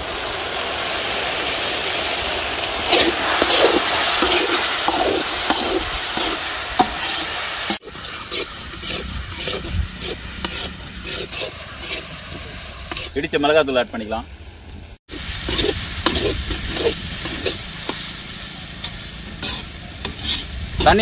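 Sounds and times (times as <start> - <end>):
food sizzling in hot oil: 0.0 - 21.0
ladle stirring and scraping: 2.9 - 13.2, 15.4 - 18.1, 18.8 - 21.0.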